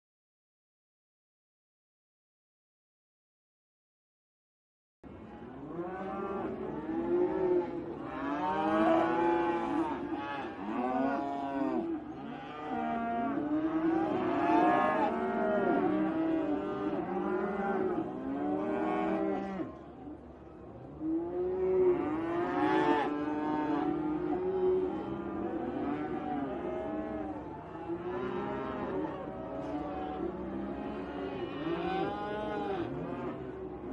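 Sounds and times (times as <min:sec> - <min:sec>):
cows mooing: 0:05.6 - 0:19.7, 0:21.1 - 0:33.8.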